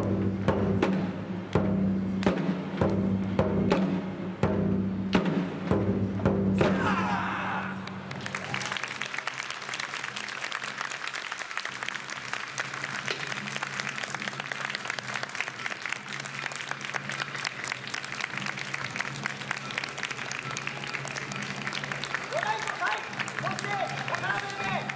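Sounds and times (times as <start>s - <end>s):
taiko drum stroke: 0.0s - 7.0s
audience clapping: 6.6s - 24.9s.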